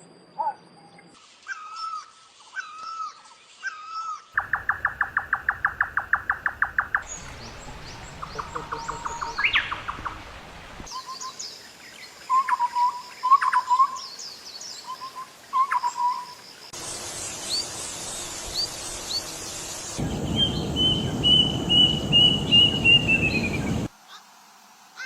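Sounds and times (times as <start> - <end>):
birds chirping: 4.4 - 11.0, 16.8 - 23.9
steady low rumble: 7.0 - 10.9, 20.0 - 23.9
bird notes dropping in pitch: 20.0 - 23.9.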